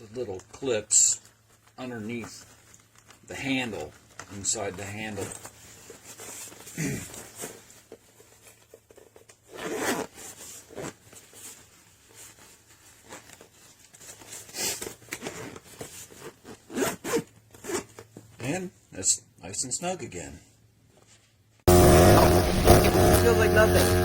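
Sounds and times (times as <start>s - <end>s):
zipper being pulled closed: 9.4s - 11.0s, 14.5s - 18.1s, 21.7s - 24.0s.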